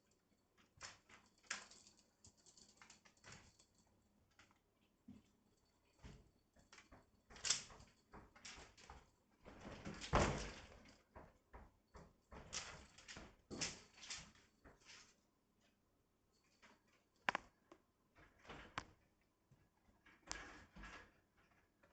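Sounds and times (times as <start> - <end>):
objects knocking and tapping: 17.2 - 17.8.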